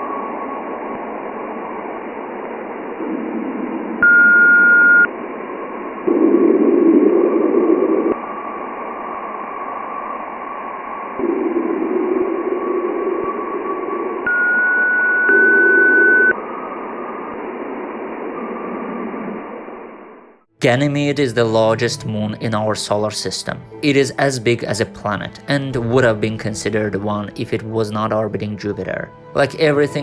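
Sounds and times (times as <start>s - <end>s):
steady high beep: 4.0s - 5.1s, 14.3s - 16.4s.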